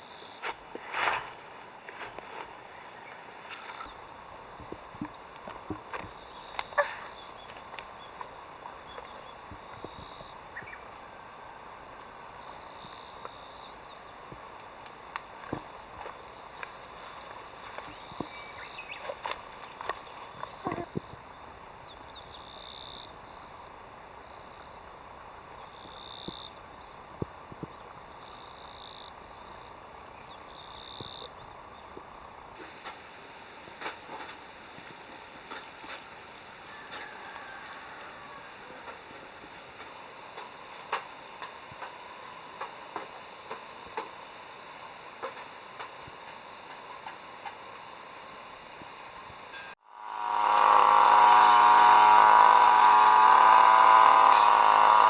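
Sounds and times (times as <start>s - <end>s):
insects chorus: 0.0s - 55.0s.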